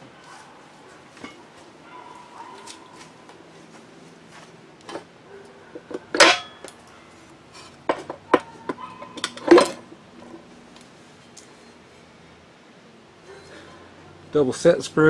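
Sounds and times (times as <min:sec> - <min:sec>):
metal tools clinking on workbench: 0:06.1 - 0:06.7
sharp metallic clanks: 0:06.1 - 0:06.7.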